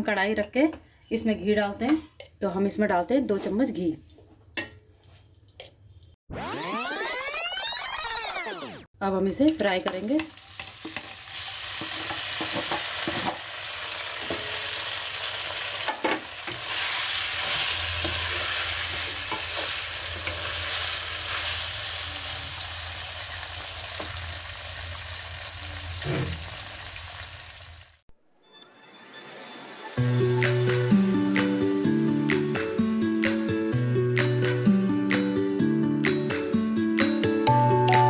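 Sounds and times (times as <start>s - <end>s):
cheese sizzling in a pan: 10.3s - 28.0s
spatula scraping and knocking pan: 15.9s - 20.8s.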